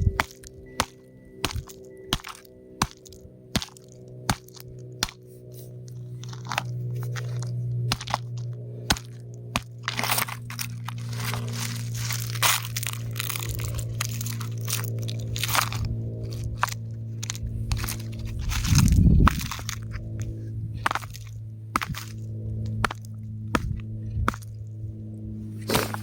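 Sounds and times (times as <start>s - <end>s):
steady low hum: 0.0s - 26.0s
rock cracking and crumbling: 0.2s - 4.7s, 6.2s - 20.2s.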